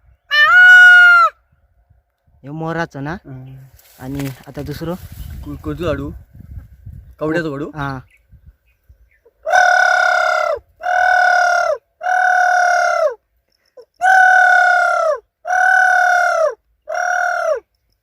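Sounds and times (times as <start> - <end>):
man imitating dove call: 9.4 - 13.2, 14.0 - 17.7.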